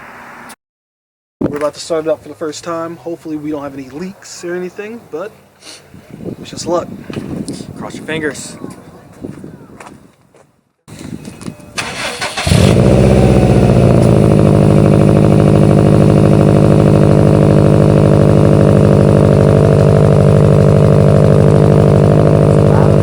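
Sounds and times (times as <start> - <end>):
car engine cranking and idling: 11.7 - 23.0.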